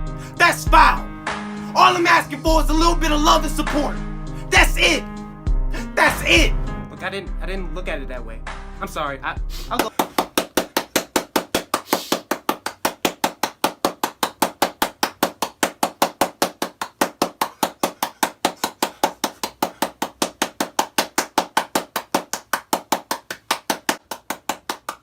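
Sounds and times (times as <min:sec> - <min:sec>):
fast even sharp taps: 0:09.8 - 0:25.0.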